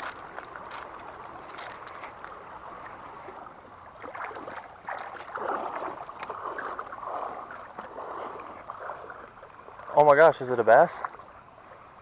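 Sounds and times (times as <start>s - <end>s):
creek water splashing: 0.0s - 12.0s.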